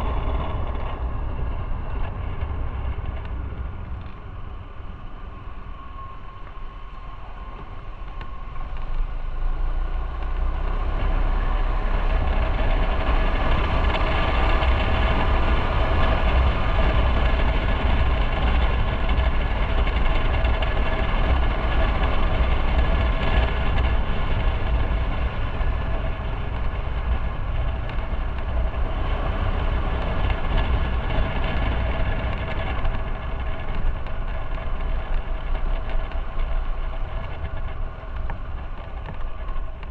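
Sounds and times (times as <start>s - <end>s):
road and wind noise: 0.0s - 39.9s
motorcycle engine running: 8.8s - 39.9s.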